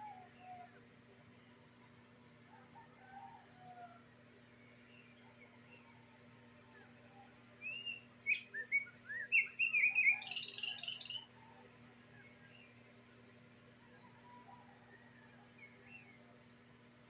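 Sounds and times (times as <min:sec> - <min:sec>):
bird singing whistled notes: 0:07.6 - 0:11.3.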